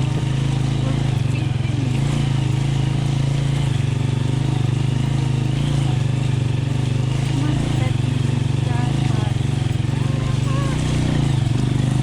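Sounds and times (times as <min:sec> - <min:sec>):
motorcycle engine droning: 0:00.0 - 0:12.0.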